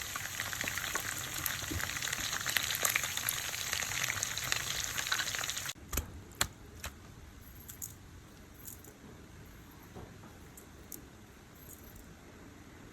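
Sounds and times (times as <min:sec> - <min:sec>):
chicken sizzling in hot oil: 0:00.0 - 0:05.8.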